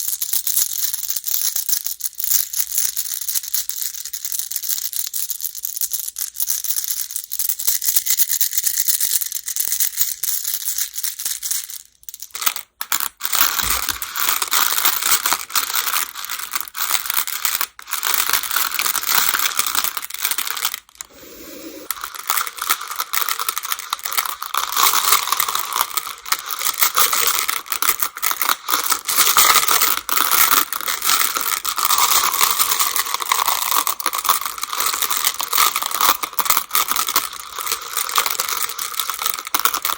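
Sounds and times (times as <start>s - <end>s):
game stones clattering together: 10.7s - 21.0s, 21.8s - 39.9s.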